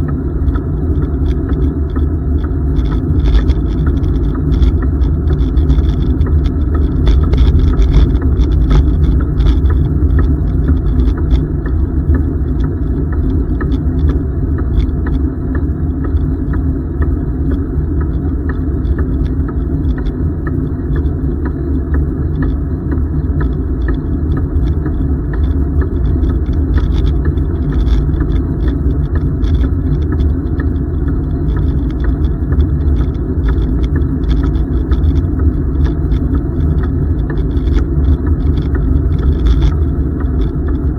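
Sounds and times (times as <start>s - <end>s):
wind buffeting microphone: 0.0s - 21.6s
light ticks and rattles: 0.0s - 40.9s.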